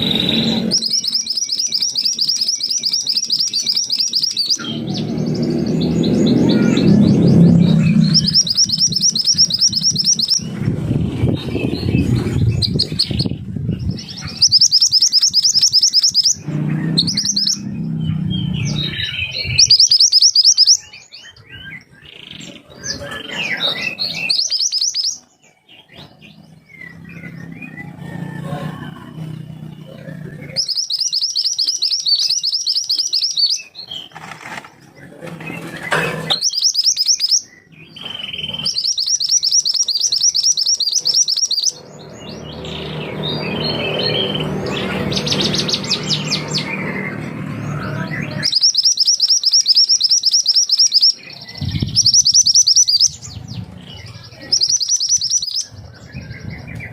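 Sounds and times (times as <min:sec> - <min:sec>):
songbird fast high trills: 0:00.0 - 0:10.5, 0:14.1 - 0:20.9
bird chirps: 0:00.0 - 0:56.9
low rumble: 0:04.6 - 0:14.4, 0:16.4 - 0:19.7.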